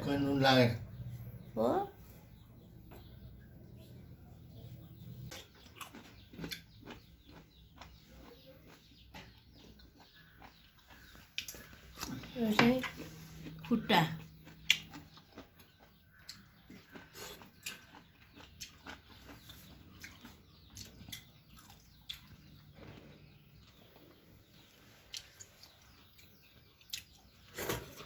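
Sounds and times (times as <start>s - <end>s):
person chewing and biting: 5.3s - 8.8s, 14.3s - 22.6s.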